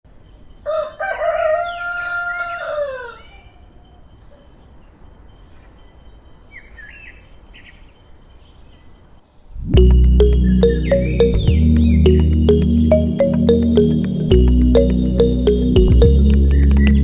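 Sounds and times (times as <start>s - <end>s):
rooster crowing: 0.7s - 3.6s.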